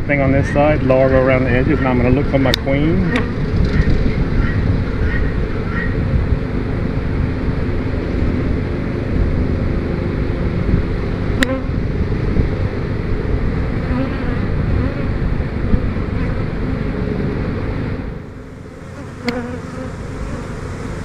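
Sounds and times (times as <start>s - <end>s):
honeybees buzzing: 13.5s - 15.2s, 18.2s - 21.0s
sharp click: 19.2s - 19.4s.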